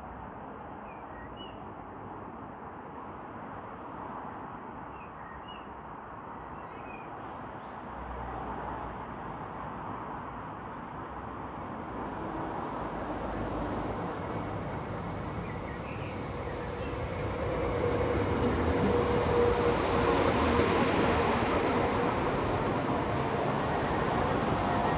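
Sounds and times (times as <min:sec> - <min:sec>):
diesel train rumble: 0:12.1 - 0:24.9.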